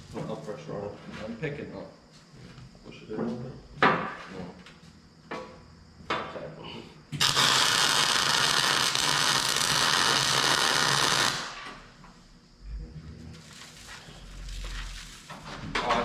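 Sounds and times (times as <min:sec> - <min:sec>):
welder buzzing sizzle: 0:07.2 - 0:11.6.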